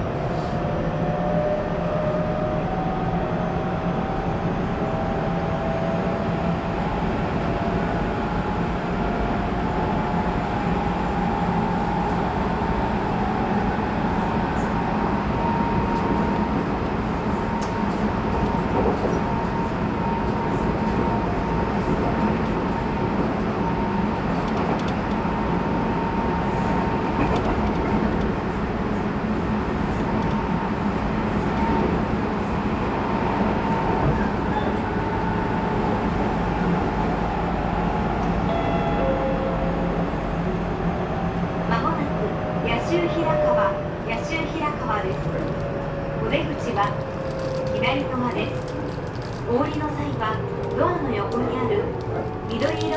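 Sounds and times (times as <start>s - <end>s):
train wheel and rail noise: 0.0s - 52.9s
train motor hum: 43.8s - 52.9s.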